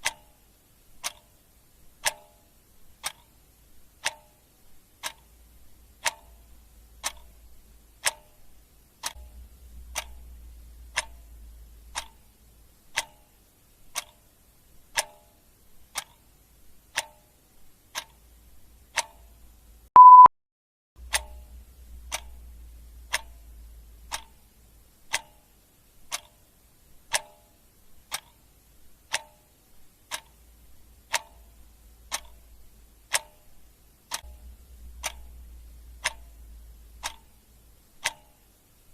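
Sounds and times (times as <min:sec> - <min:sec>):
clock ticking: 0:00.0 - 0:20.3, 0:21.0 - 0:38.9
short high beep: 0:20.0 - 0:20.3.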